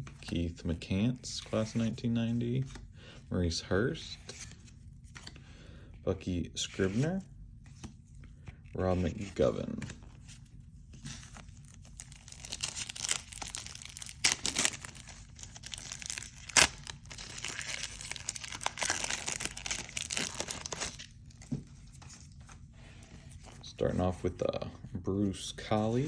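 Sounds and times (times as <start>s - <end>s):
wrapper tearing and crinkling: 11.6s - 21.4s.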